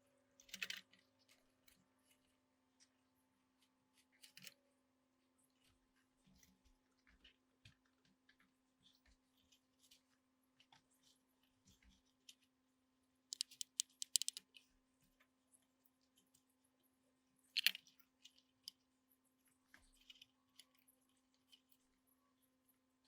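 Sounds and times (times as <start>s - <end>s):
small parts and tools clicking: 0.4s - 2.2s, 13.3s - 14.7s, 17.5s - 18.8s, 19.7s - 21.8s.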